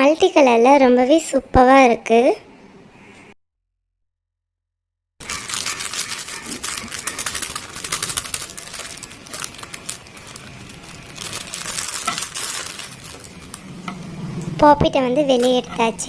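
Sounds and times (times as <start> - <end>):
plastic packaging crinkling: 5.2 - 13.7.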